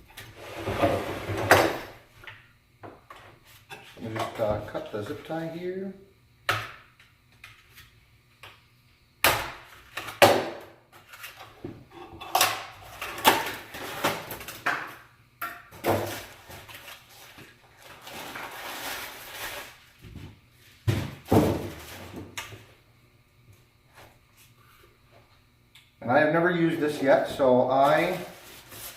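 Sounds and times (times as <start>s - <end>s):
cardboard and foam packaging handled: 15.9s - 22.4s, 27.8s - 28.9s.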